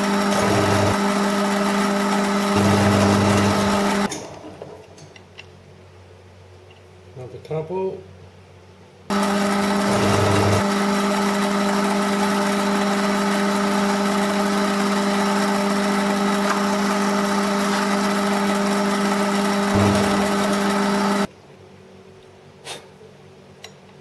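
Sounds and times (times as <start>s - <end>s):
machine tool motor humming: 0.0s - 4.1s, 9.1s - 21.3s.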